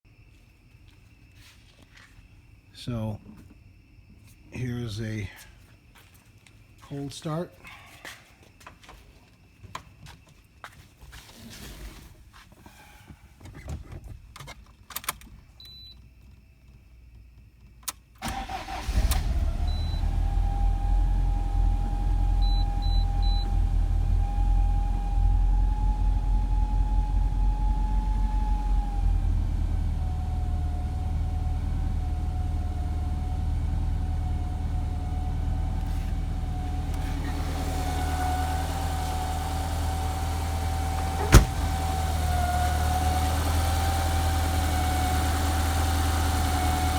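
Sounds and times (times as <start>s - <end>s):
car engine cranking and idling: 16.1s - 46.9s.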